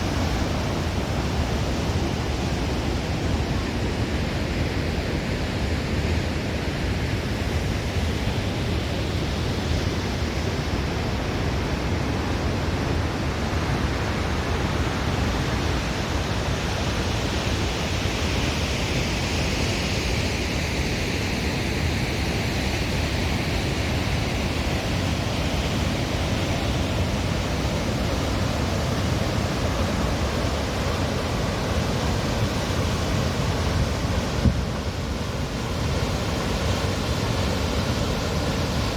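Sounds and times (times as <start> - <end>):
waterfall rushing: 23.8 - 38.9.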